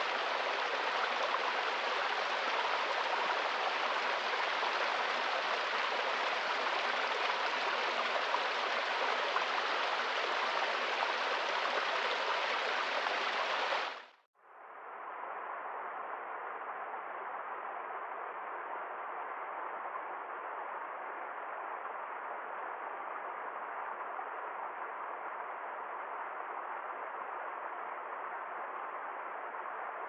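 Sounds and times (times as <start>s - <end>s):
running water stream: 0.0s - 14.2s.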